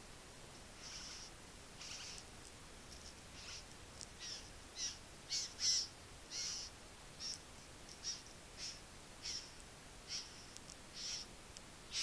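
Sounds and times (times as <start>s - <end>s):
bird giving harsh calls: 0.8s - 2.2s, 3.4s - 3.6s, 4.2s - 7.4s, 8.0s - 11.3s.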